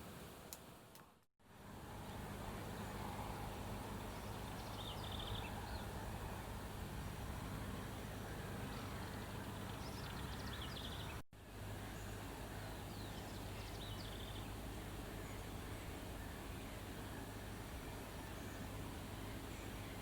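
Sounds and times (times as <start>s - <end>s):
background hiss: 0.0s - 1.2s.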